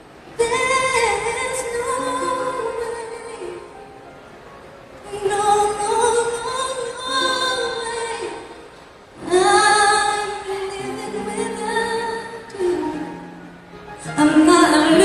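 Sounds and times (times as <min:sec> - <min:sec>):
woman singing long notes: 0:09.2 - 0:15.0.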